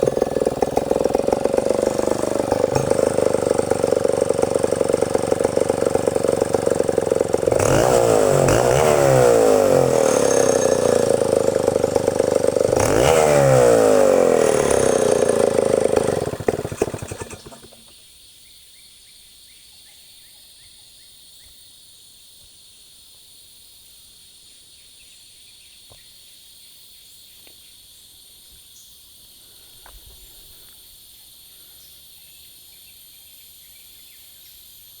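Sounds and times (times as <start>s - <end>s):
chainsaw revving: 0.0s - 18.0s
insects chirring: 17.6s - 35.0s.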